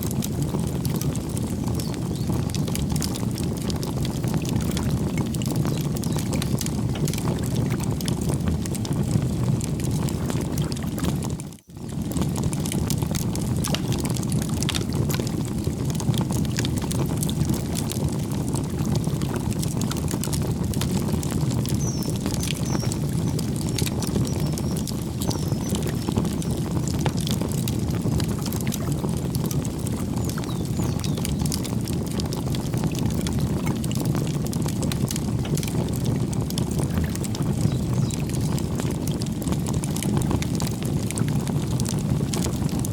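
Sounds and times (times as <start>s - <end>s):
campfire crackling and popping: 0.0s - 42.9s
faint bird chirps: 21.8s - 26.2s.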